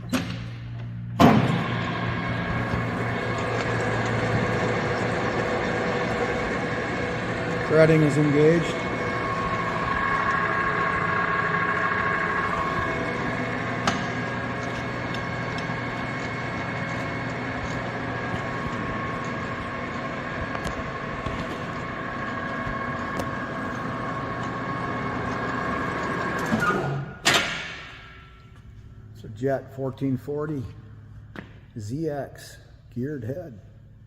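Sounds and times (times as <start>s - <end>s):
loud machine clunk: 0.0s - 21.7s, 25.8s - 28.3s
lathe gear whine: 1.2s - 27.2s.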